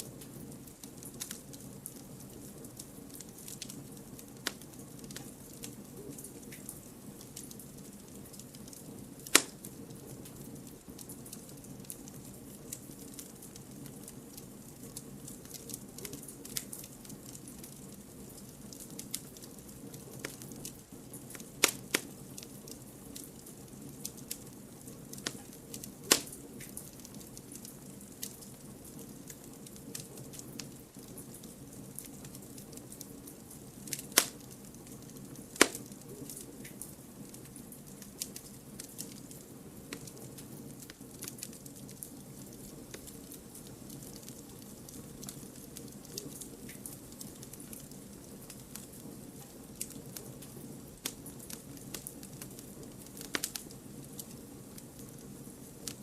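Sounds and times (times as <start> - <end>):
campfire crackling: 0.0 - 56.0
low fire hiss: 0.0 - 56.0
loud sharp fire pops: 9.2 - 9.8, 21.3 - 22.1, 25.2 - 26.8, 33.9 - 34.5, 35.5 - 36.0, 53.1 - 53.6.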